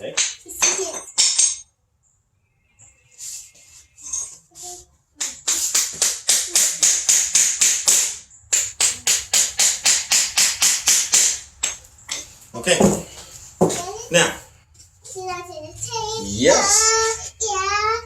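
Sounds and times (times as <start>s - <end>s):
hammer driving nail into wood: 5.2s - 11.8s.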